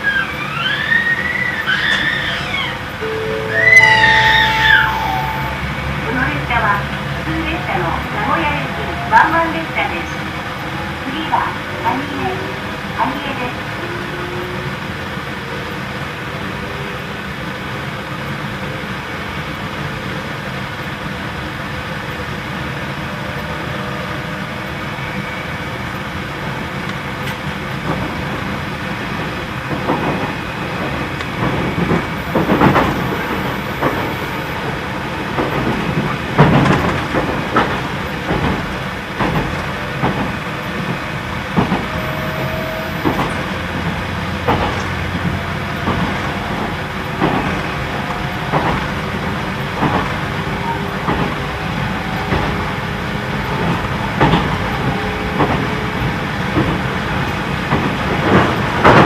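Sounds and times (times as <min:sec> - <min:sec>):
train running gear hum: 0:00.0 - 0:59.0
wheels clattering over rail joints: 0:27.2 - 0:42.0, 0:43.0 - 0:59.0.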